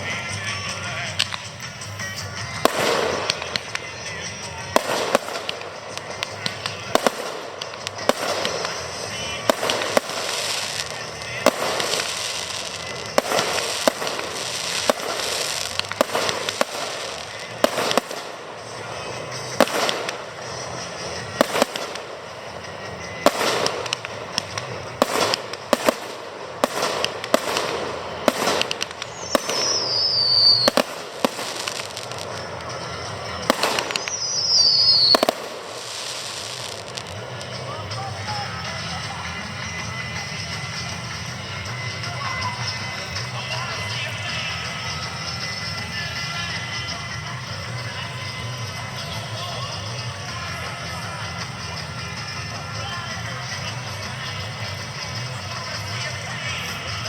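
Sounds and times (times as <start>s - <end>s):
firework shells bursting: 0.0s - 42.0s
fireworks crackle and rumble: 0.0s - 57.0s.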